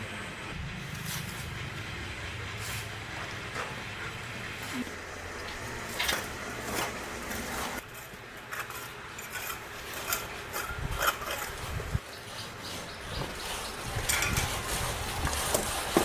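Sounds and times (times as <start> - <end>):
hard objects scraping and knocking: 5.5 - 16.0.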